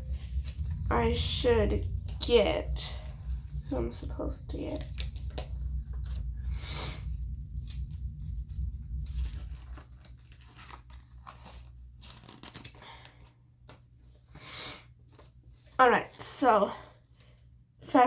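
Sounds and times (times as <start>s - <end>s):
packaging crinkling and tearing: 4.7s - 6.4s, 7.6s - 13.8s.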